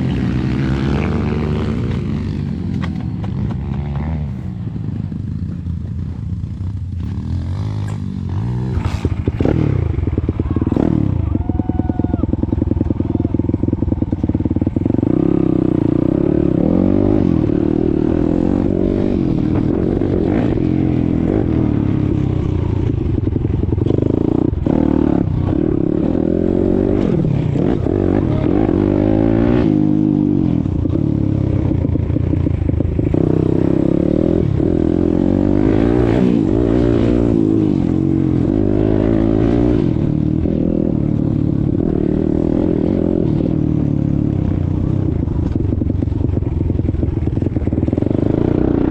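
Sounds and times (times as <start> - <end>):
motorbike engine revving: 6.6 - 48.9.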